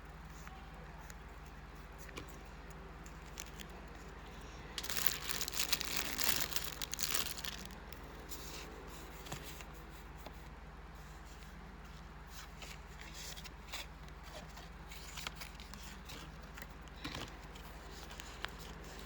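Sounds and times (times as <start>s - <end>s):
low steady hum: 0.0s - 19.0s
package wrapping crinkling: 3.2s - 3.7s, 4.8s - 8.0s.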